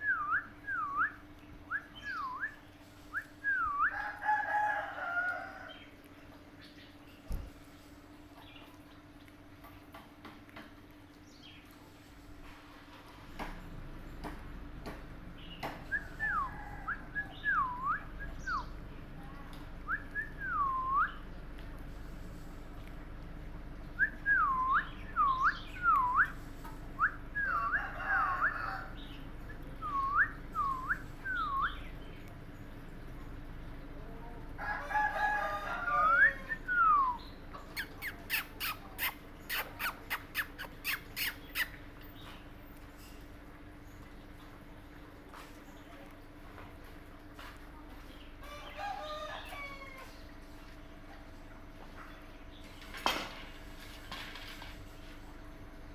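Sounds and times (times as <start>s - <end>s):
parrot chirps: 37.6s - 41.8s.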